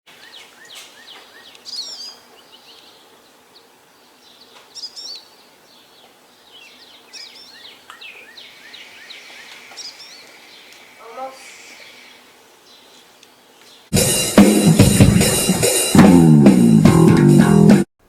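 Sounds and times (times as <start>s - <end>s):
birds singing and chirping: 0.1s - 13.9s
background hiss: 0.1s - 16.9s.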